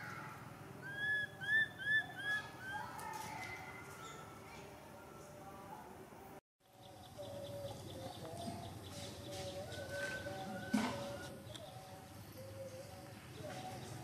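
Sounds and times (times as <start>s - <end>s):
birds whistling: 0.8s - 2.9s.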